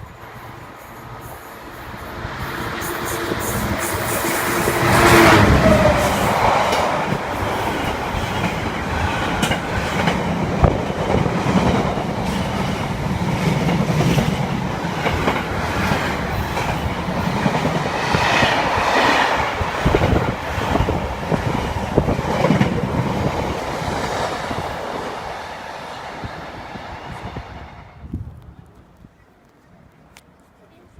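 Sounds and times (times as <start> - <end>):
train wheels clattering over rail joints: 3.0 - 24.7.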